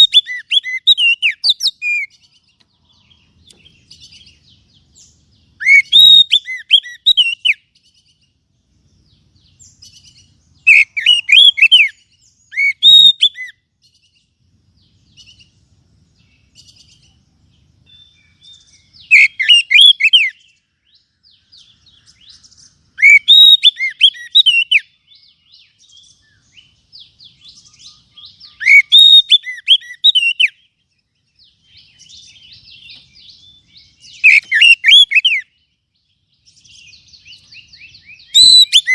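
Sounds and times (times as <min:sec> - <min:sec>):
bird whistled phrases: 0:00.0 - 0:02.1, 0:05.6 - 0:07.6, 0:10.6 - 0:13.6, 0:17.9 - 0:20.4, 0:23.0 - 0:25.0, 0:27.5 - 0:30.6, 0:34.0 - 0:35.5, 0:36.7 - 0:38.9
soft bird twittering: 0:00.0 - 0:38.9.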